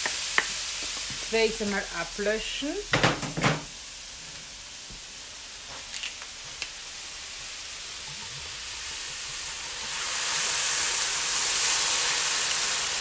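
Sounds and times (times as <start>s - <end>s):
liquid hissing in hot wok: 0.0s - 2.7s, 3.6s - 13.0s
food sizzling in a wok: 0.0s - 13.0s.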